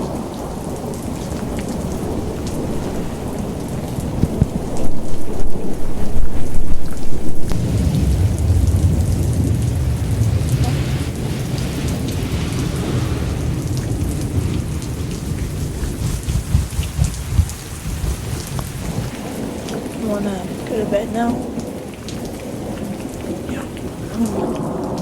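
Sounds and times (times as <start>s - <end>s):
heavy rain: 0.0s - 25.0s
low rumble of thunder: 0.0s - 25.0s
drops pattering: 15.6s - 19.4s.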